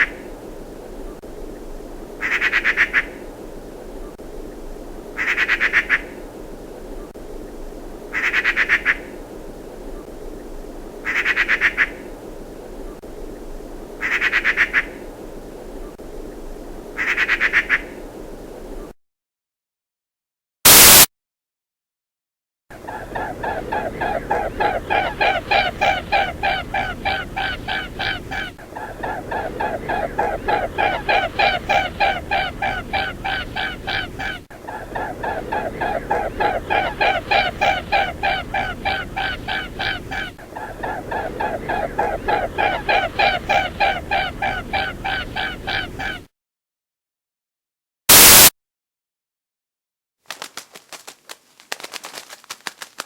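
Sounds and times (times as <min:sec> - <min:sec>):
bird honking calls: 0:23.0 - 0:46.2.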